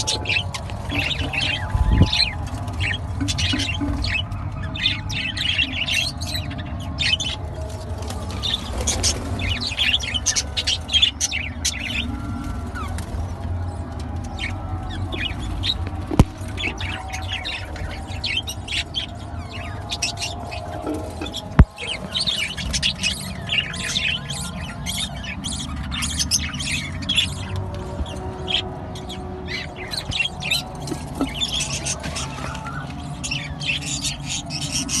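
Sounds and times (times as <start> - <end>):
budgerigars chirping: 8.4 - 35.0.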